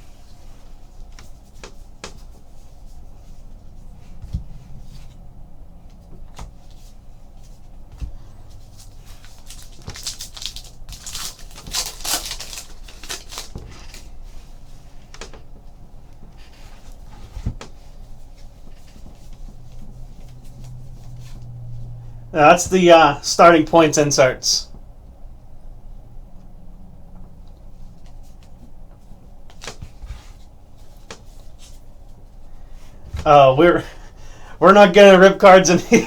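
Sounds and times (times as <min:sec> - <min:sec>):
crackly wrapper rustling: 0:08.8 - 0:14.2.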